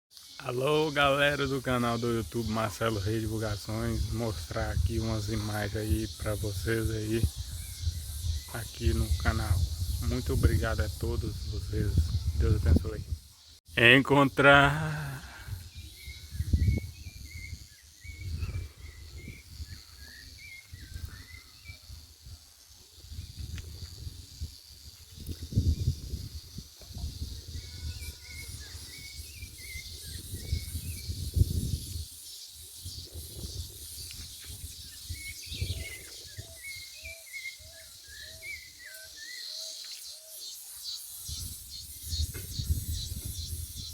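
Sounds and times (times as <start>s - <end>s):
thin insect drone: 0.1s - 43.9s
wind buffeting microphone: 2.3s - 13.3s, 15.2s - 22.4s, 23.0s - 32.2s, 32.8s - 37.2s, 41.2s - 43.9s
faint bird chirps: 15.5s - 22.1s, 26.9s - 43.9s.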